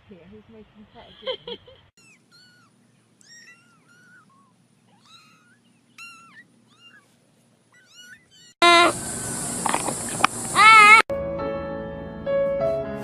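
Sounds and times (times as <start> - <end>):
kitten mewing: 2.0 - 9.0, 10.6 - 11.0.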